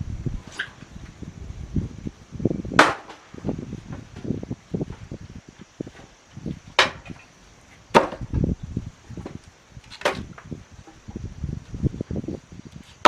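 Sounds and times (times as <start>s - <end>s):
axe chopping wood: 2.8s - 3.3s, 6.8s - 7.2s, 7.9s - 8.3s.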